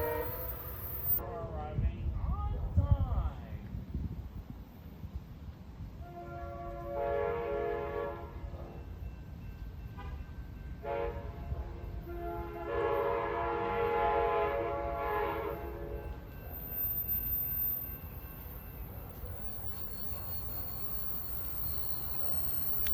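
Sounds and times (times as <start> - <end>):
locomotive air horn blasts: 0.0 - 1.2, 6.0 - 8.5, 10.8 - 16.0.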